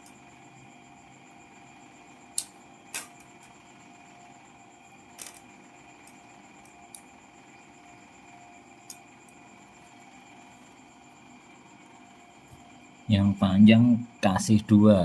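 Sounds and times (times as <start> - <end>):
faint steady hum: 0.0 - 15.0
small parts clicking: 2.3 - 3.5, 5.1 - 7.1, 8.8 - 9.4.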